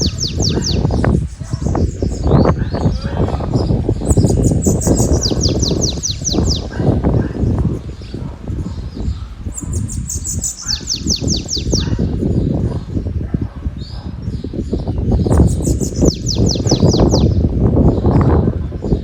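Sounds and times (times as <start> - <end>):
songbird singing: 0.0 - 19.0
wind buffeting microphone: 0.0 - 19.0.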